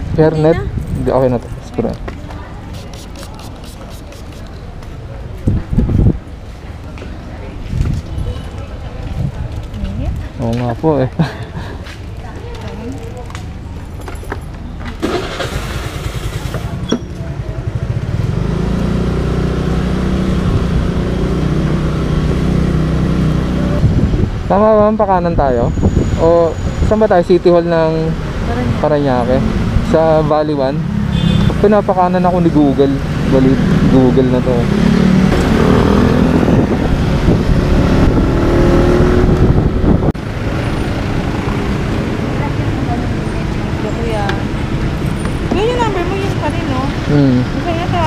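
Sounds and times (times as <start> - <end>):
wind noise on microphone: 0.0 - 1.8, 5.4 - 6.4, 7.6 - 10.4, 23.5 - 27.0, 35.1 - 42.6
motorcycle engine running: 15.0 - 22.9
motorcycle engine drone: 29.3 - 45.6.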